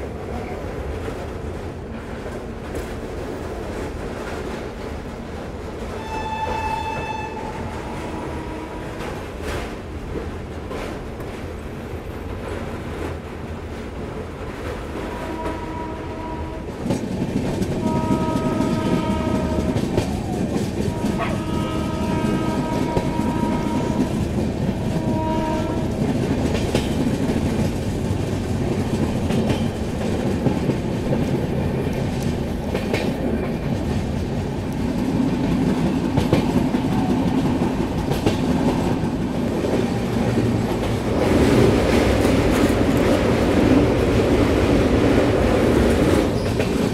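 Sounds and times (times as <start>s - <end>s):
train rumbling on track: 0.0s - 46.9s
train horn blasts: 6.0s - 9.3s, 15.0s - 16.8s, 17.8s - 26.1s.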